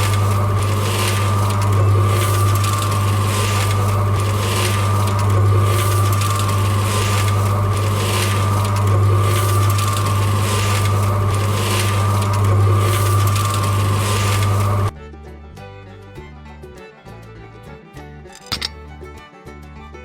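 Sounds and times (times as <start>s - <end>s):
small motorised tool humming: 0.0s - 14.9s
rough scraping: 0.0s - 15.0s.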